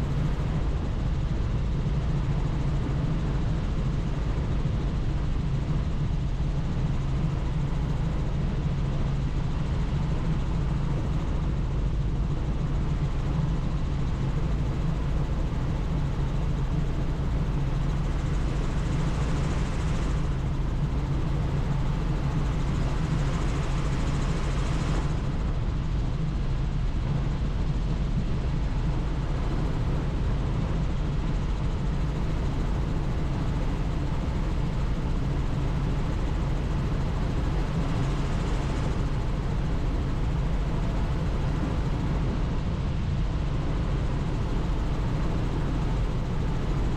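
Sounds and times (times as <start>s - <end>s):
helicopter rotor and engine: 0.0s - 46.9s.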